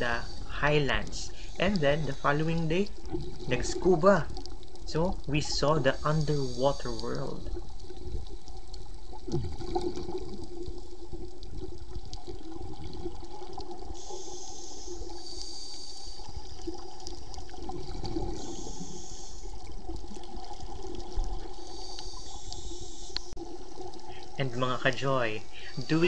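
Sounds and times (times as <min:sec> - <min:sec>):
scuba regulator breaths: 0:00.0 - 0:02.6, 0:13.9 - 0:16.8, 0:18.2 - 0:19.6, 0:21.4 - 0:23.4, 0:25.4 - 0:26.0
underwater rush with low hum: 0:00.0 - 0:26.0.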